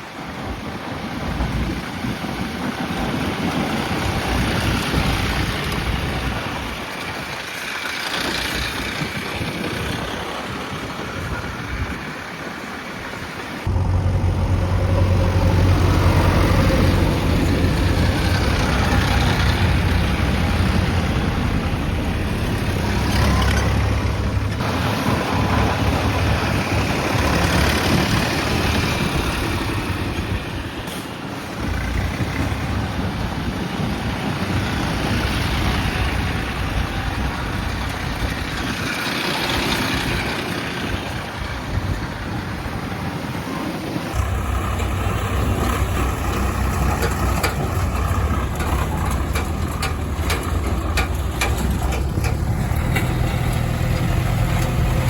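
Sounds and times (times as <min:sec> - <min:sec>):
heavy diesel engines running: 0:00.0 - 0:55.0
deep engine rumble: 0:13.6 - 0:30.8, 0:44.2 - 0:55.0.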